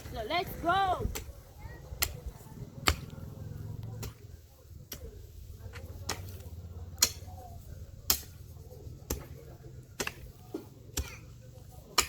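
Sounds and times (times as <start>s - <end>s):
hand tool chopping into soil: 5.7s - 7.4s, 10.0s - 12.0s.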